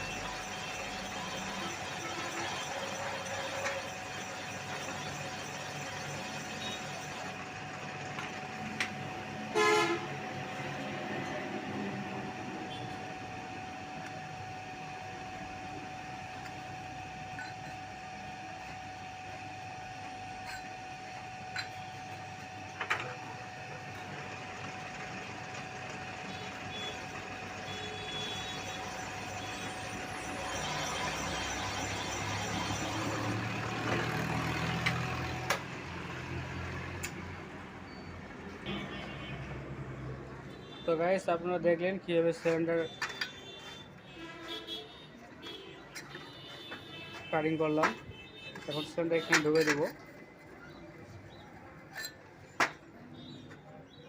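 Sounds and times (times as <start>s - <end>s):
machine tool whining: 0.0s - 39.2s.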